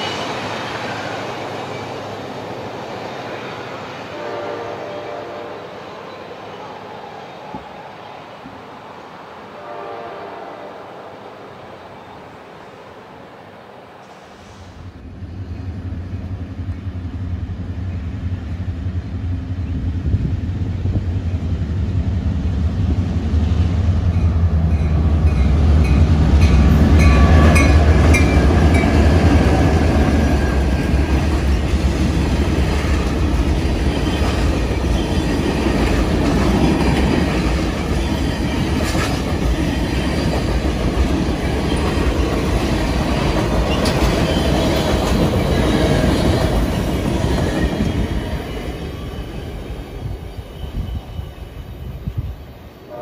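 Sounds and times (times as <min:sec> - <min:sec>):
diesel locomotive engine drone: 0:00.0 - 0:53.0
wheels clicking over rail joints: 0:24.7 - 0:48.4.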